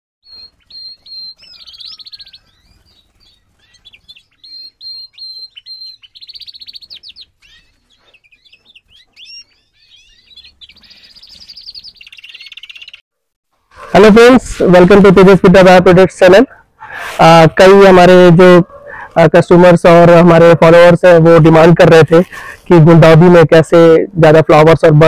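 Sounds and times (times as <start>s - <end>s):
bird trill: 0.2s - 13.0s
birds singing: 0.2s - 13.0s.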